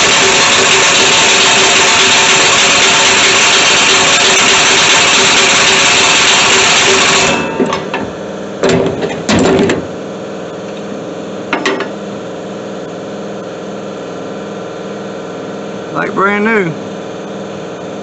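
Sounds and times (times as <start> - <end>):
engine idling: 0.0 - 7.5.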